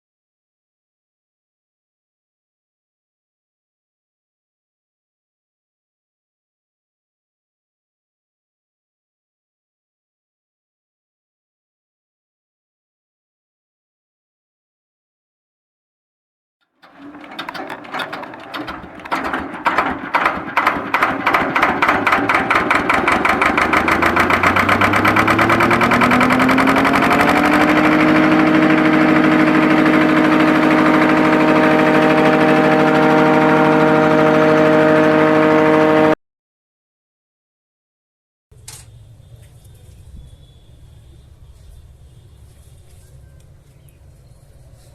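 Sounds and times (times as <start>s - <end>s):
engine starting and running: 16.6s - 36.2s.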